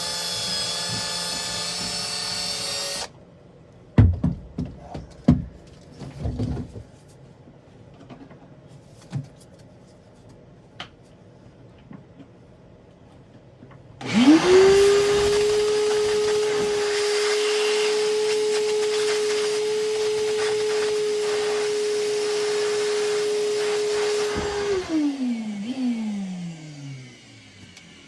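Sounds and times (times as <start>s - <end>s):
electric drill whining: 0.0s - 3.1s, 14.0s - 28.0s.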